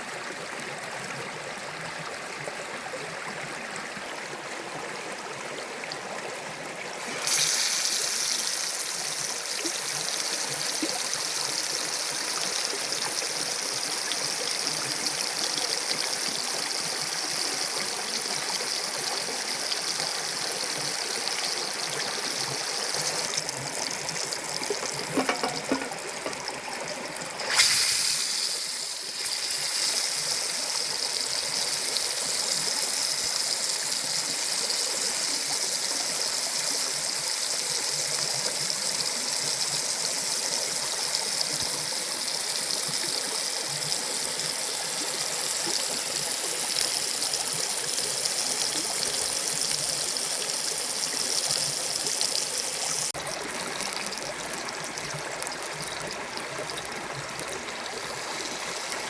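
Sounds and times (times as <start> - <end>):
fish sizzling in a pan: 7.0 - 26.5, 27.2 - 53.2.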